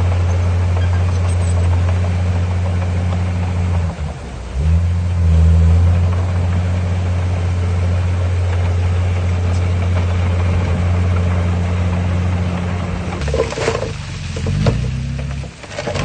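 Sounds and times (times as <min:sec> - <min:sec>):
heavy diesel engine droning: 0:00.0 - 0:16.0.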